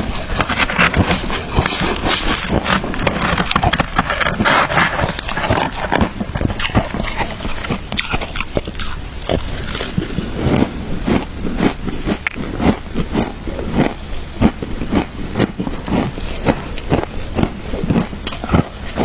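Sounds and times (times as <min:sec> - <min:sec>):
ice crunching while chewed: 0:00.0 - 0:19.0.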